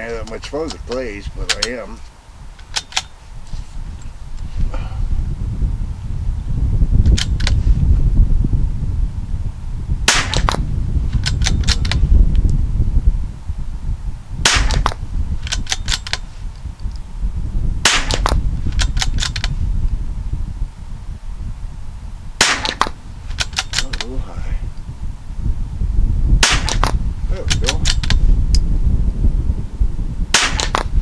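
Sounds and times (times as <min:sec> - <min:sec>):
steady low rumble: 0:00.0 - 0:31.0
fainter sharp cracks: 0:10.1 - 0:10.6, 0:14.5 - 0:16.2, 0:17.8 - 0:19.5, 0:22.4 - 0:24.1, 0:26.4 - 0:28.2, 0:30.3 - 0:30.9
rifle shots: 0:10.1 - 0:10.6, 0:14.4 - 0:16.1, 0:17.8 - 0:19.4, 0:22.4 - 0:23.9, 0:26.4 - 0:28.1, 0:30.3 - 0:30.9.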